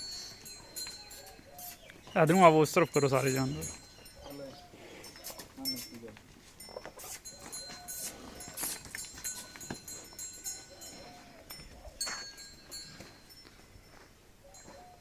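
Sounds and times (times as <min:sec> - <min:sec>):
faint animal calls: 0:00.0 - 0:06.0, 0:10.4 - 0:12.2, 0:14.4 - 0:15.0.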